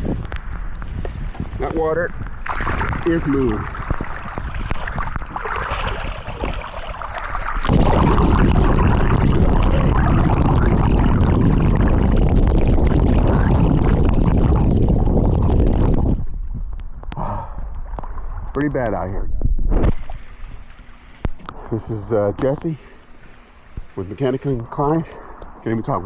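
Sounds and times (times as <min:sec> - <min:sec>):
rainwater runoff rushing: 0:00.0 - 0:11.4, 0:21.3 - 0:25.8.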